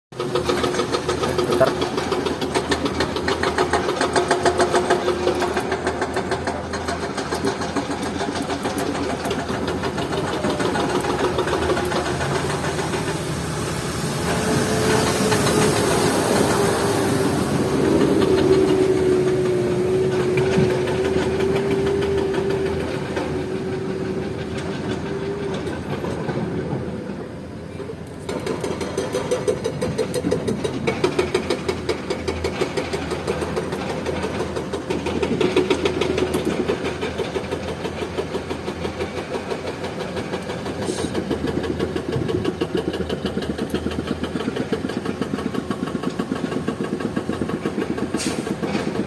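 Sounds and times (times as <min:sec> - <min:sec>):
diesel engine pulsing: 0:00.1 - 0:49.0
steady whine: 0:00.6 - 0:28.2
hydraulic hiss: 0:48.1 - 0:48.7.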